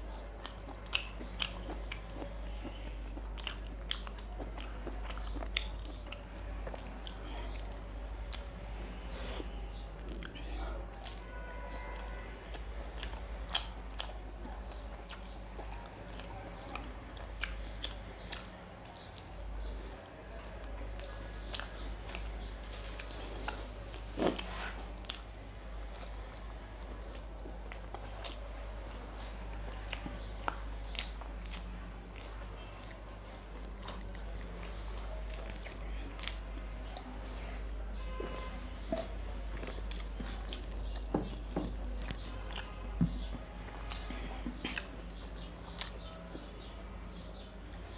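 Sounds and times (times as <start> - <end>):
man chewing food: 0.0 - 47.9
wet mouth sounds: 43.8 - 46.3.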